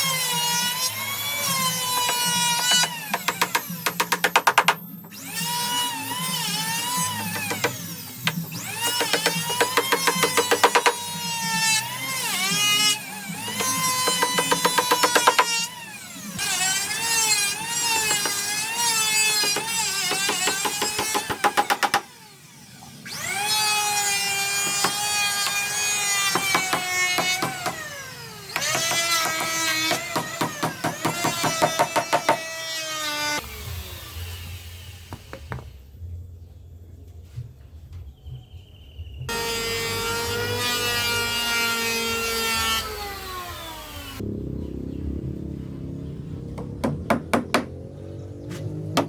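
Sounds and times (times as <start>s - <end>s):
power tool cutting wood: 0.0s - 35.6s, 39.3s - 44.4s
low motor hum: 43.7s - 49.0s.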